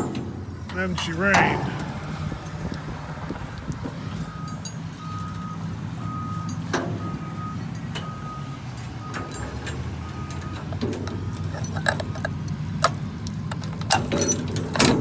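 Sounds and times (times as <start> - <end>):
diesel engine running: 0.0 - 15.0
reversing alarm beeping: 4.0 - 12.0.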